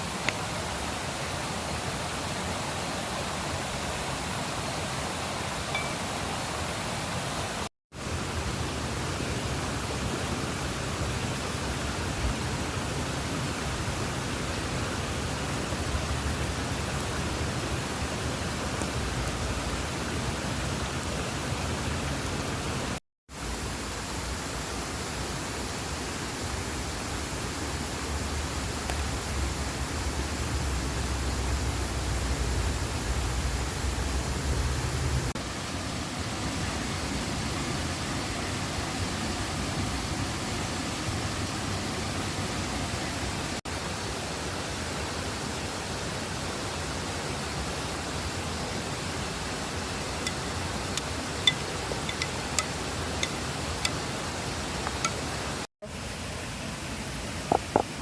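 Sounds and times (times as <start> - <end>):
river water rushing: 16.4 - 47.0.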